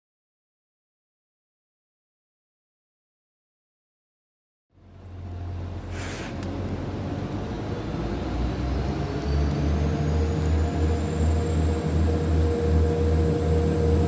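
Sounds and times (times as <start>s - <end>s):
faint rising whine: 4.8s - 14.0s
train rumbling: 4.8s - 14.0s
air hiss: 5.9s - 6.4s.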